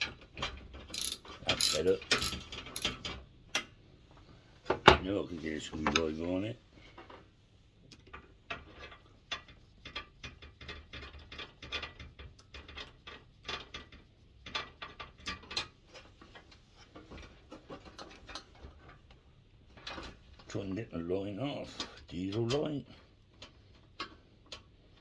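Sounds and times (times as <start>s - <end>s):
screwdriver metal clicks: 0.9s - 2.9s.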